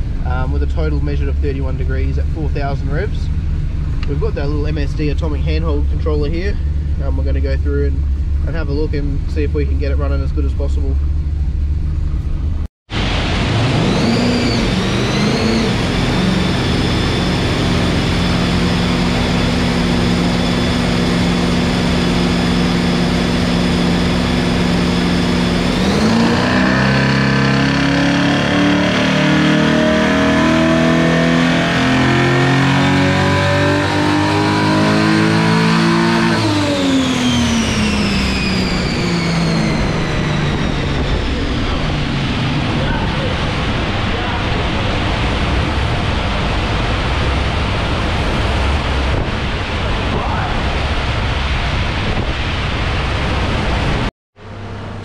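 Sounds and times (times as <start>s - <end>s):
car engine revving: 0.0s - 55.0s
high whine of driveline and rollers: 0.0s - 55.0s.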